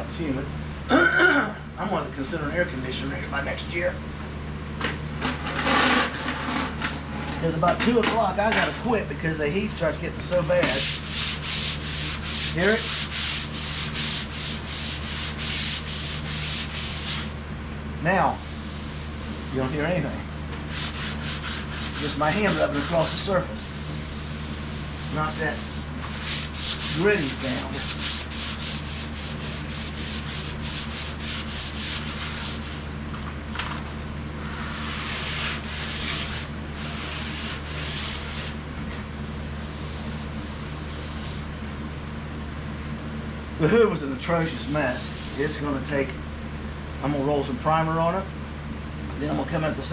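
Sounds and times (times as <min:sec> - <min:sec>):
sandpaper rasping on metal panel: 0:10.7 - 0:17.3, 0:18.4 - 0:32.9, 0:34.4 - 0:38.6, 0:39.2 - 0:41.5, 0:44.3 - 0:45.7.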